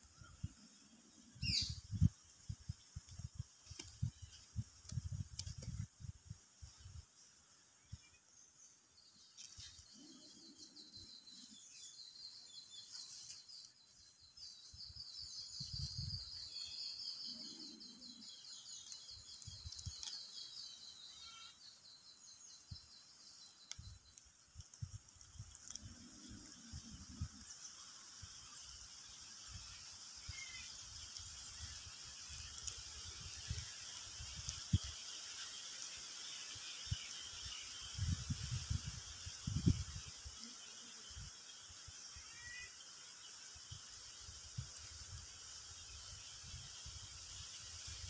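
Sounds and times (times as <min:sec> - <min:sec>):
birds chirping: 0:08.0 - 0:24.0
rapid high bird calls: 0:29.4 - 0:38.0, 0:42.1 - 0:43.0.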